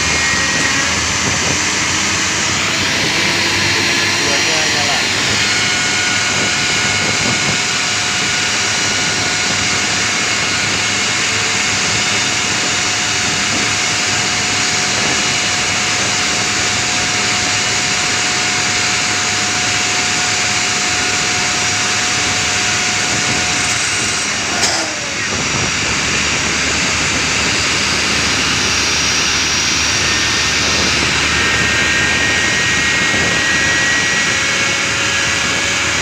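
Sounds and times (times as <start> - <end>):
high whining tones: 0.0 - 10.6, 21.0 - 36.0
jet engine running: 0.0 - 36.0.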